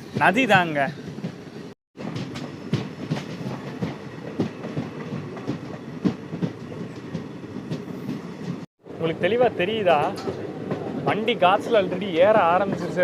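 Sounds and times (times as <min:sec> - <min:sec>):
train wheels rumbling: 0:00.0 - 0:13.0
wheels clicking over rail joints: 0:09.6 - 0:13.0.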